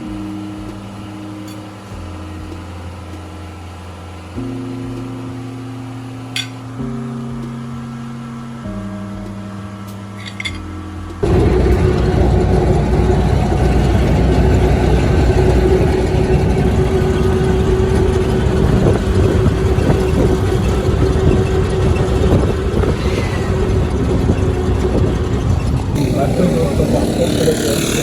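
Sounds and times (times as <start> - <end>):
vehicle engine and road noise: 0.0 - 28.0.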